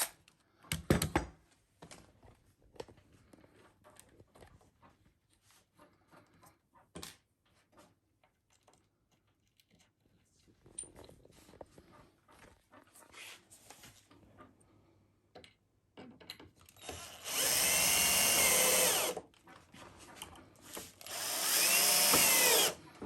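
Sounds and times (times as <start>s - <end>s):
wooden parts and tools clicking: 15.3s - 23.0s.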